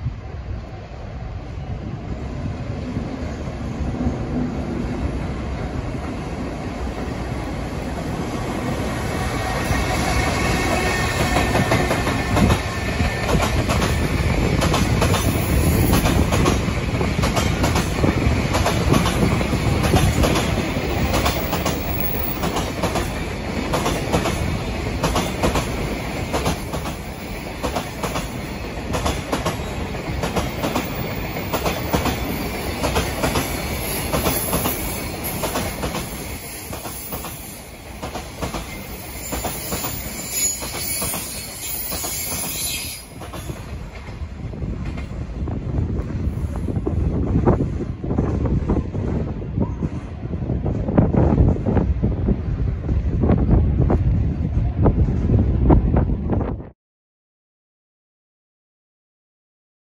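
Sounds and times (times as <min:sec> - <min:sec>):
freight train wheels clacking: 0:07.9 - 0:45.2
train wheel squeal: 0:33.8 - 0:37.7, 0:38.6 - 0:43.6.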